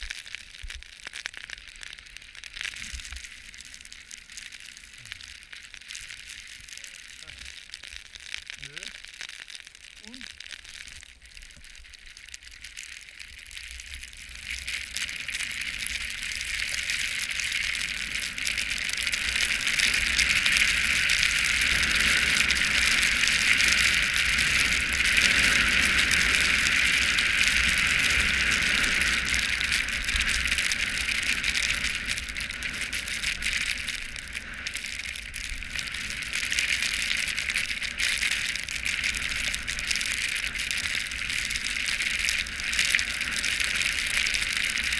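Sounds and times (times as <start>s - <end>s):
skis hissing on snow: 0.0s - 7.8s, 8.5s - 9.1s, 13.8s - 44.9s.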